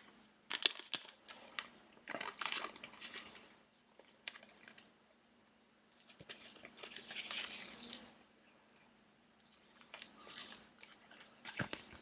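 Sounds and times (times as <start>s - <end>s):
plastic packaging crinkling: 0.5s - 4.9s, 5.9s - 8.2s.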